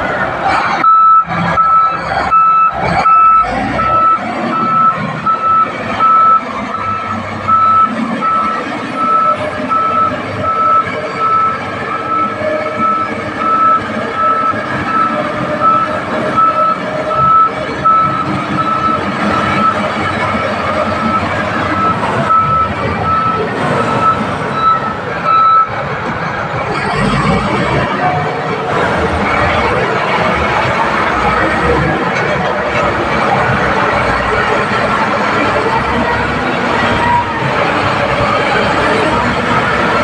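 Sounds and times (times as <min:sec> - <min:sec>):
diesel engine running: 0:00.0 - 0:40.0
reversing alarm beeping: 0:00.8 - 0:25.8.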